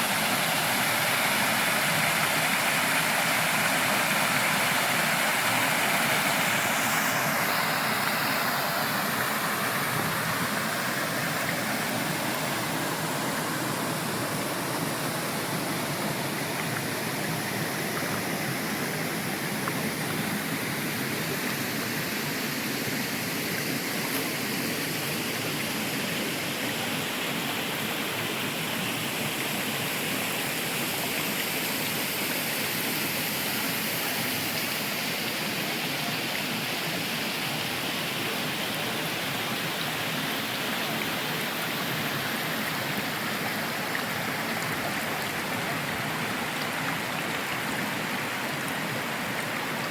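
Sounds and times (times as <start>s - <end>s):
rush of falling water: 0.0s - 49.9s.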